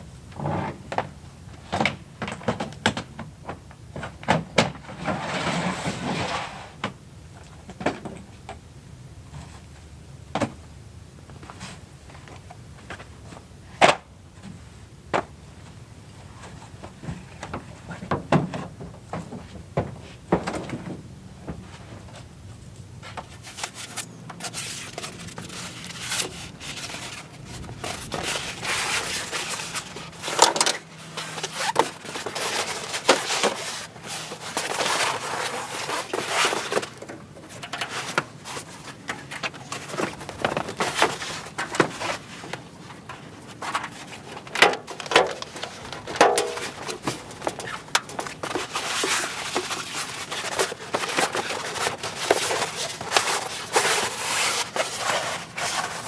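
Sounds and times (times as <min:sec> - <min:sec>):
rustling and scraping: 0:04.0 - 0:06.9, 0:15.6 - 0:56.0.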